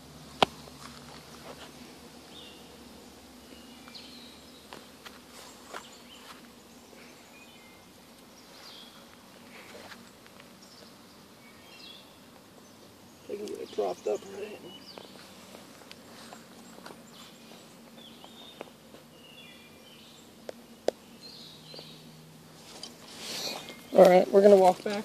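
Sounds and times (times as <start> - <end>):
small birds chirping: 0.0 - 25.0
handling clicks and rustles: 22.6 - 25.0.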